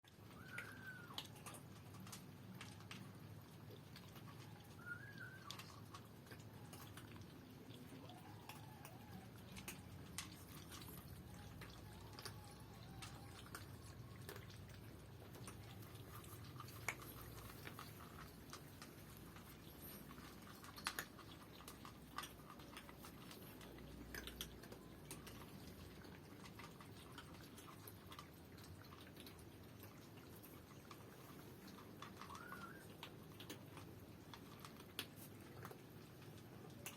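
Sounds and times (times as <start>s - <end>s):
faint high chirp: 4.7s - 5.6s, 32.3s - 33.0s.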